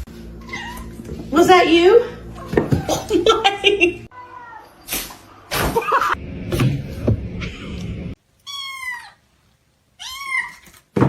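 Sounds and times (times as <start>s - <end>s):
cat meowing: 8.4s - 9.2s, 10.0s - 10.8s.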